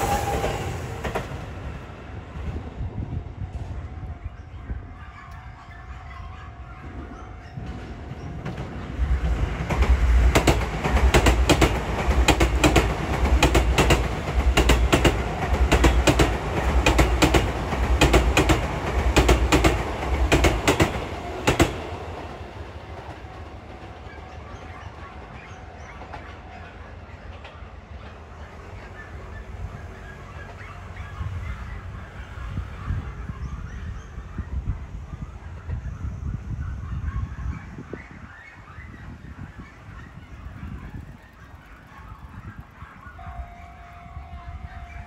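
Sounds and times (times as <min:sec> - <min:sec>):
electric train rumble: 0:00.0 - 0:45.0
wheels clacking over rail joints: 0:07.5 - 0:29.2.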